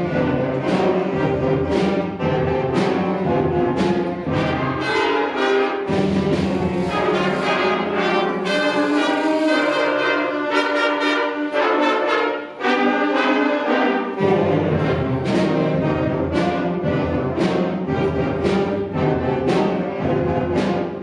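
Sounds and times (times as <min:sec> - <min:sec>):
low brass: 0:00.0 - 0:20.8
concert band playing: 0:00.0 - 0:21.0.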